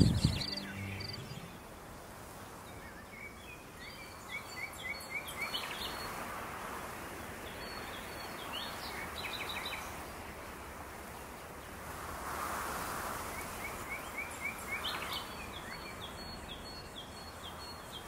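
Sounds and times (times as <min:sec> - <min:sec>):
small birds chirping: 0:00.0 - 0:01.8, 0:07.2 - 0:11.8, 0:13.3 - 0:18.0
steady outdoor hiss: 0:00.0 - 0:18.0.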